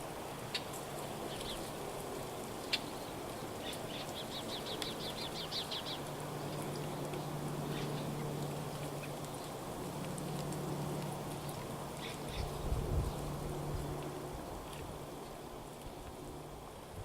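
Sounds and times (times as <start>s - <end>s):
low steady hum: 0.0s - 17.0s
small birds calling: 2.6s - 9.6s.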